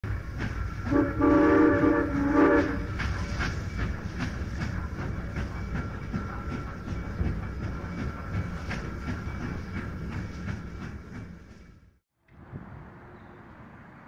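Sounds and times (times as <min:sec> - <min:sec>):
train wheels clickety-clack: 0:00.0 - 0:11.9
train whistle chord: 0:00.8 - 0:02.9.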